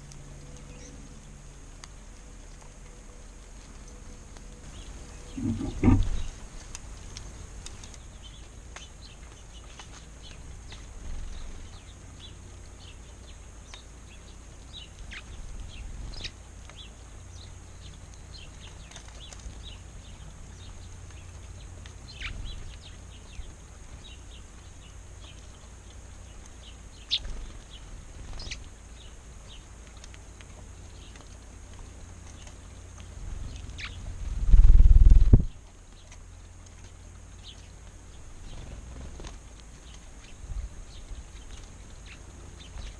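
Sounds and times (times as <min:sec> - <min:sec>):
wild birds chirping: 0:00.0 - 0:42.9
loud low rumble: 0:04.7 - 0:06.3
wind rumble on microphone: 0:04.7 - 0:06.6, 0:33.2 - 0:35.7.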